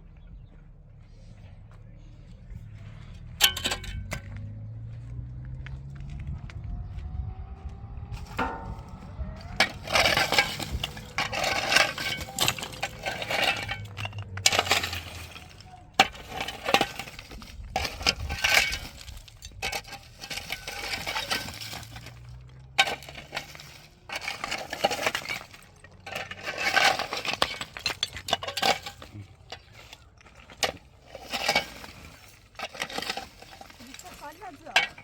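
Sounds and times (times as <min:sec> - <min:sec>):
hard objects clinking and clattering: 0:03.3 - 0:04.4, 0:08.2 - 0:35.0.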